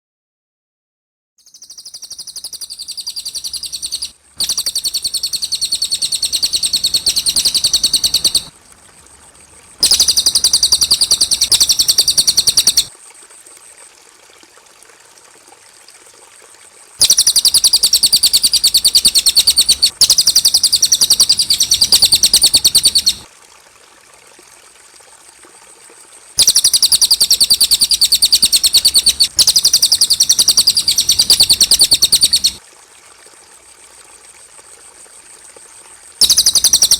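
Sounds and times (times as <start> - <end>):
faint high hiss: 1.5 - 13.8, 16.9 - 23.3, 26.3 - 32.6
bird chattering trills: 1.6 - 8.5, 9.8 - 12.9, 17.0 - 23.2, 26.4 - 32.6, 36.2 - 36.9.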